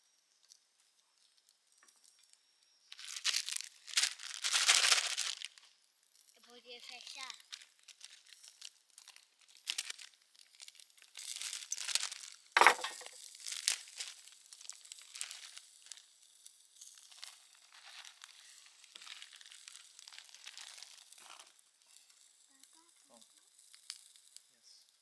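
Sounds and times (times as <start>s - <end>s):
crinkling and rustling: 2.9s - 5.7s, 6.9s - 16.3s, 16.9s - 22.4s.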